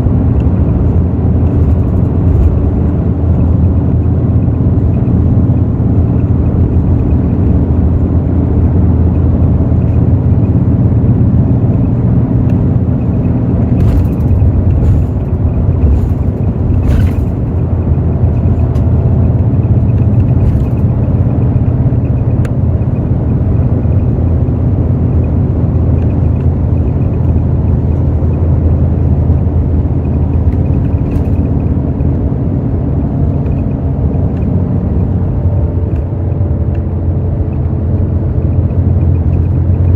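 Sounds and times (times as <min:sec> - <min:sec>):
bus diesel engine running: 0:00.0 - 0:39.9
road rumble: 0:00.0 - 0:39.9.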